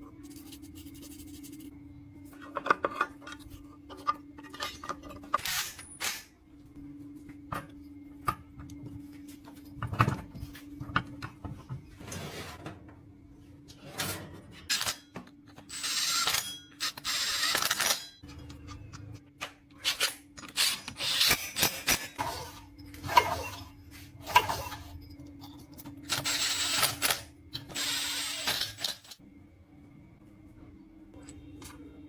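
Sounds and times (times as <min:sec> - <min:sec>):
tools and metal parts clicking: 0:02.4 - 0:06.3, 0:14.6 - 0:19.2, 0:19.8 - 0:29.2.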